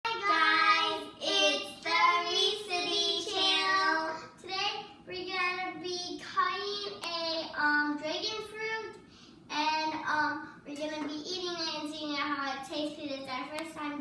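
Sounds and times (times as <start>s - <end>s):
child singing: 0.1s - 4.6s.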